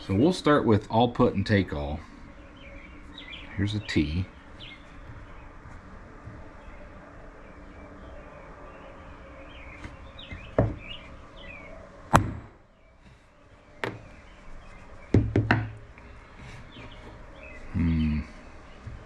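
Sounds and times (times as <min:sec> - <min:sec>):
birds chirping faintly: 0:00.0 - 0:19.0
hammer striking metal punch: 0:12.1 - 0:12.6.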